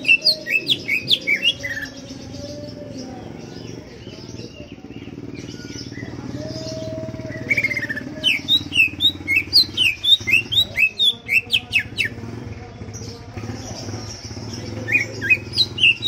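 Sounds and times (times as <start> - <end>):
bird chirps: 0.0 - 16.0
bird trill: 0.0 - 16.0.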